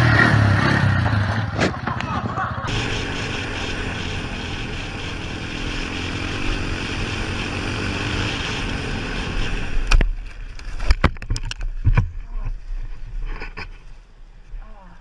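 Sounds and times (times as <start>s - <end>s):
off-road engine running: 0.0s - 11.6s.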